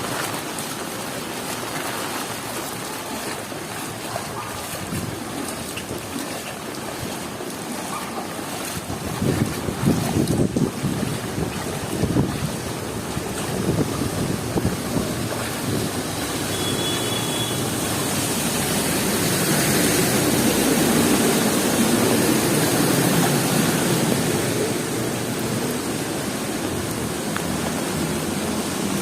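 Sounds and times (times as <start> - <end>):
heavy rain: 0.0 - 29.0
vehicle passing on wet road: 0.0 - 29.0
gusting wind: 8.7 - 16.5.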